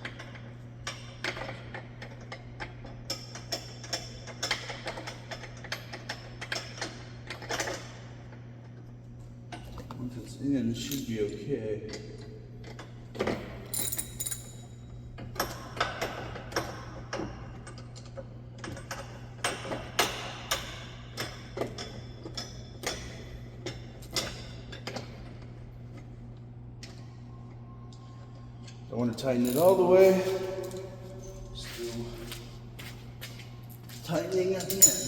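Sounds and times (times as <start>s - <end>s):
steady low hum: 8.0s - 35.0s
metallic clinks of hand tools: 13.8s - 14.7s, 29.4s - 30.4s, 34.6s - 35.0s.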